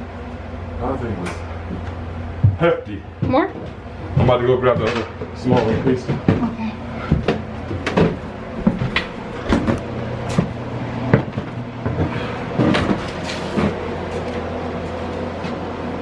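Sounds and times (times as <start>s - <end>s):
steady low hum: 0.0s - 16.0s
debris knocking and clattering: 4.1s - 13.9s.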